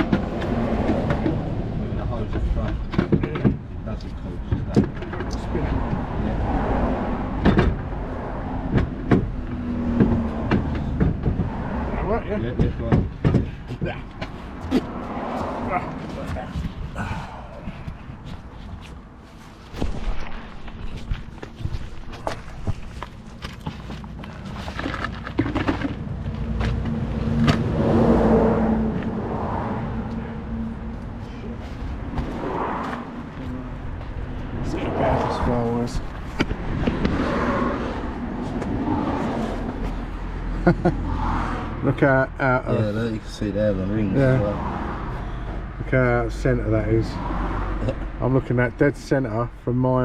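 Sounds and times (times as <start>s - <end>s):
vehicle engine hum: 0.0s - 50.0s
sharp clicks and knocks: 2.2s - 6.0s.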